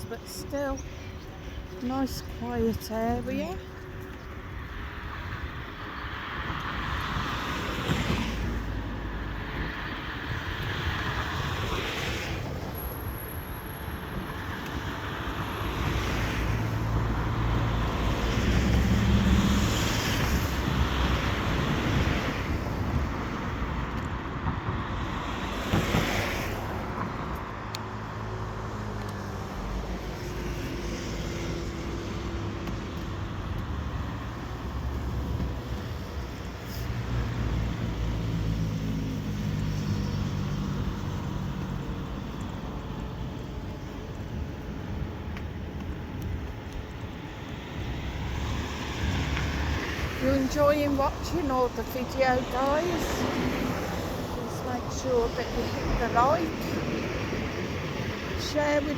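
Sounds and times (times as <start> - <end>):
cars passing on busy road: 0.0 - 58.9.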